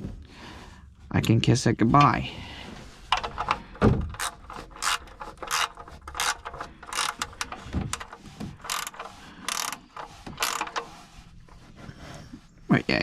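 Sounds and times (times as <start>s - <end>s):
ratchet wrench clicking: 4.2s - 10.9s.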